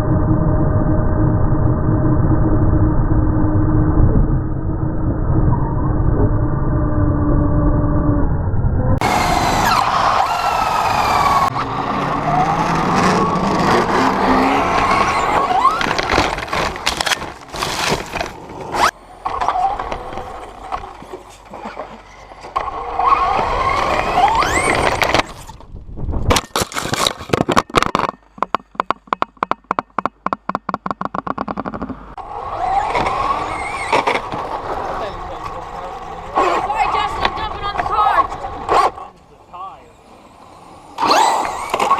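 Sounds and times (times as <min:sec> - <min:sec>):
tyres rumbling and scraping: 0:08.8 - 0:41.9
rc truck electric motor whining: 0:09.0 - 0:17.2, 0:18.7 - 0:25.5, 0:32.2 - 0:39.0, 0:40.0 - 0:41.9.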